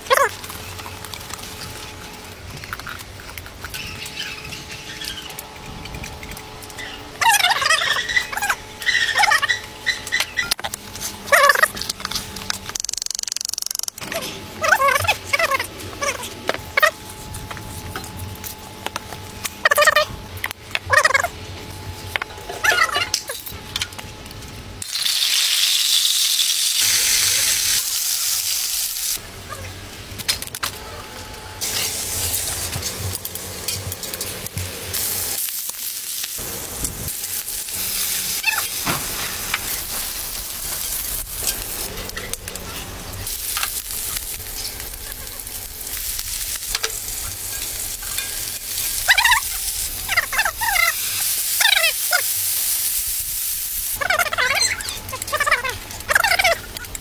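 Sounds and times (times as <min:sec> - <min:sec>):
food sizzling in a pan: 0:24.8 - 0:29.7, 0:31.6 - 0:42.3, 0:43.0 - 0:55.0.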